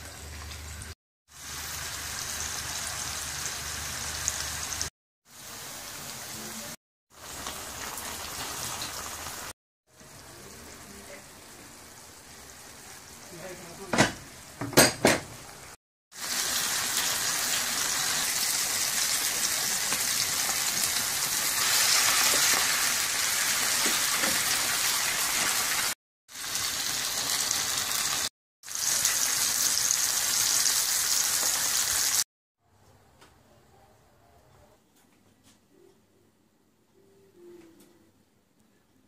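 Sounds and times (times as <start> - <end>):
food sizzling in a frying pan: 0.0 - 14.5, 16.1 - 32.3.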